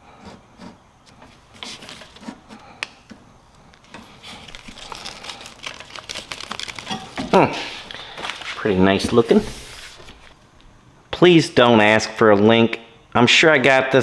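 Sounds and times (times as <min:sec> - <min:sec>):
crinkling and rustling: 0:00.6 - 0:10.4.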